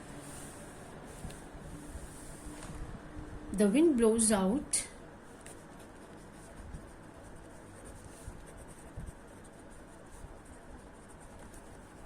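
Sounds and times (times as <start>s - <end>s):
handwriting scratching: 5.4s - 12.0s.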